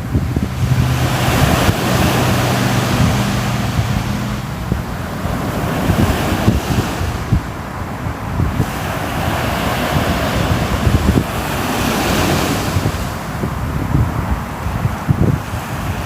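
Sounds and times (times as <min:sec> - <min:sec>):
sea waves washing ashore: 0:00.0 - 0:16.0
wind buffeting microphone: 0:00.0 - 0:16.0.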